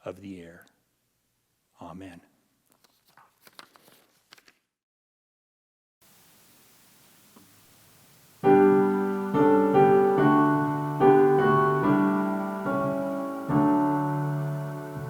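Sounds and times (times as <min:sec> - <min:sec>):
piano playing slow chords: 0:08.4 - 0:15.0.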